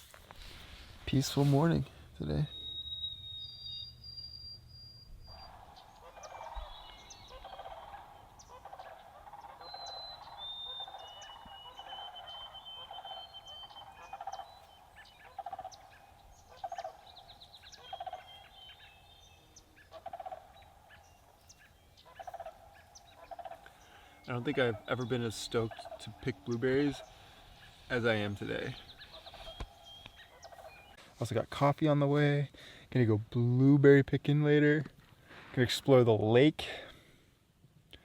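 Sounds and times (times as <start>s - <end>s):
high whistled birdsong: 0.0s - 31.2s
rapid rattling bird calls: 5.2s - 31.0s.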